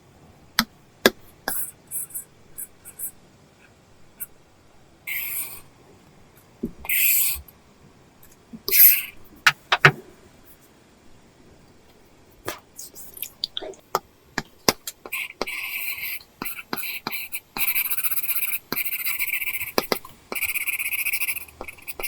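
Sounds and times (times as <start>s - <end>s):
stylus scratching on screen: 15.0s - 22.0s
stylus tapping on screen: 19.5s - 20.6s.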